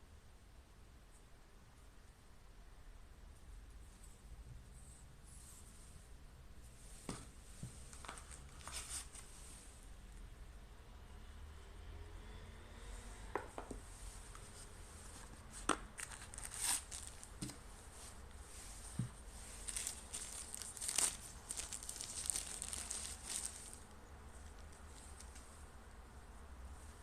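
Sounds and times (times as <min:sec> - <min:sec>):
packaging crinkling and rustling: 0:15.1 - 0:17.6, 0:18.9 - 0:25.5.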